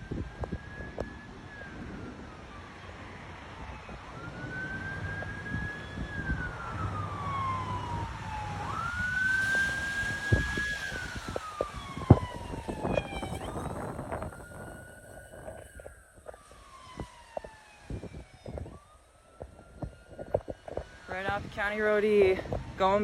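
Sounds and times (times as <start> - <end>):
siren wailing: 0.0 - 23.0.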